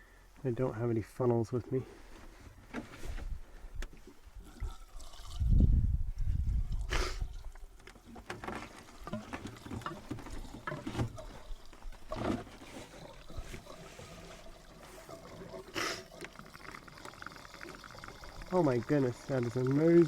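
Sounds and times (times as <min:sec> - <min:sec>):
fuel can clunks and scrapes: 0:02.2 - 0:03.4, 0:06.8 - 0:15.1
wind buffet on microphone: 0:04.6 - 0:07.5.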